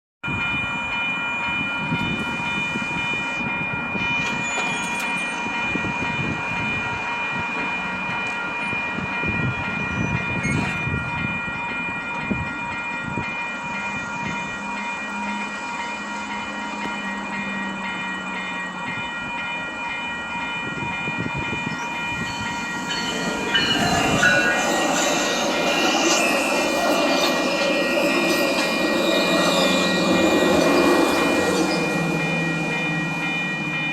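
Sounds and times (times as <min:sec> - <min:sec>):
level crossing bell ringing: 0:00.3 - 0:33.9
train wheels clattering on rails: 0:04.1 - 0:11.1.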